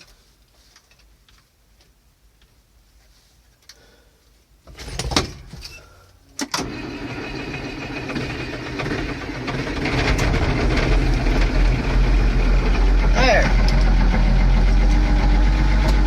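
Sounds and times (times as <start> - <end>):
tractor starter cranking: 6.4 - 16.0
tractor engine running: 6.6 - 16.0.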